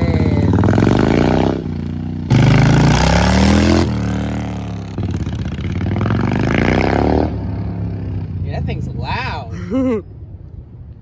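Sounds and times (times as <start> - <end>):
motorcycle engine revving: 0.0 - 8.8.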